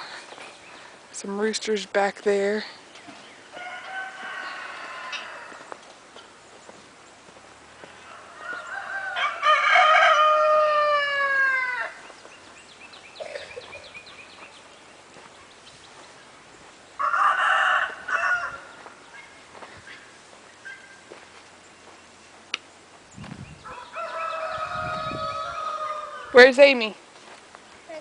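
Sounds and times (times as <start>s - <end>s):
rooster crowing: 3.5s - 5.8s, 8.0s - 12.0s, 17.0s - 18.8s, 23.6s - 26.4s.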